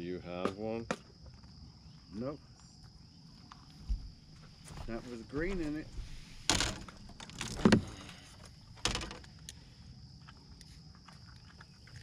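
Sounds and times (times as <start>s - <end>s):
fishing tackle rattling: 5.4s - 9.4s.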